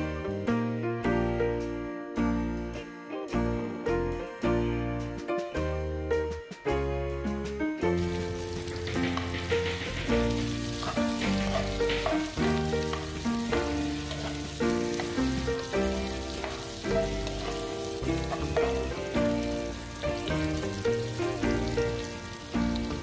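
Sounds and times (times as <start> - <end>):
background music: 0.0 - 23.0
vegetables sizzling in hot oil: 8.0 - 23.0
spoon stirring in a pan: 8.1 - 23.0.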